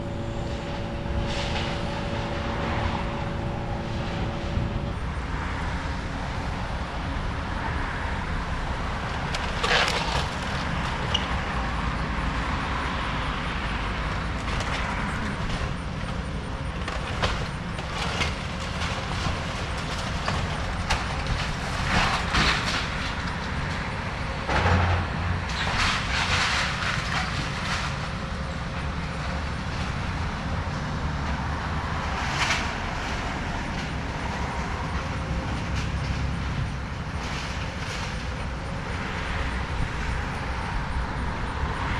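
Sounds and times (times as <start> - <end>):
excavator engine running: 0.0 - 12.1
debris crunching and crashing: 9.3 - 11.0.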